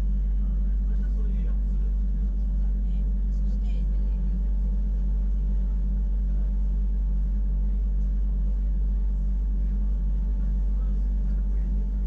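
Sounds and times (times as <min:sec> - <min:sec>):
electric train rumble and hum: 0:00.0 - 0:12.0.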